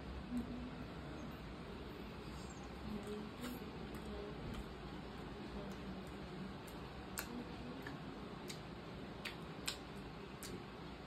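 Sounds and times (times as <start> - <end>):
person chewing and licking fingers: 5.6 - 10.8.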